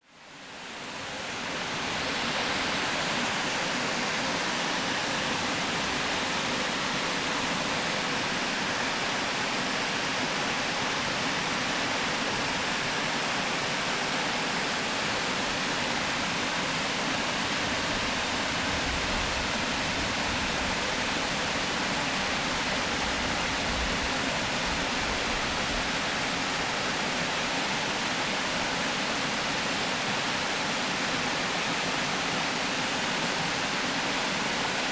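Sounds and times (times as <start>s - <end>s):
water rushing over weir: 0.4s - 34.9s.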